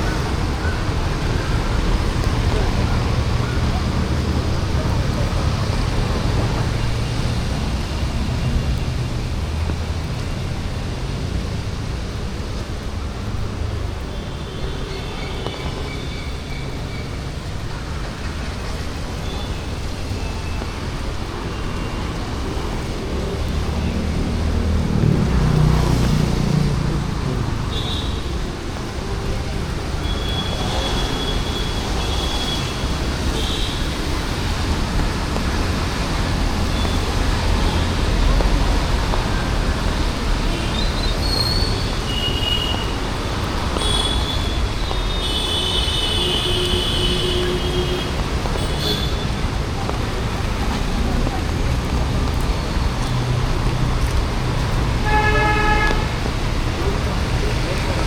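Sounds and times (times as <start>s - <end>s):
hum of passing vehicles: 21.2s - 31.2s.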